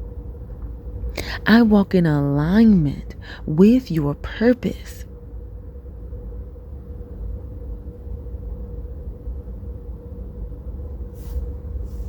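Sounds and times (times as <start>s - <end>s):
faint even hum: 0.0s - 12.0s
steady low rumble: 0.0s - 12.0s.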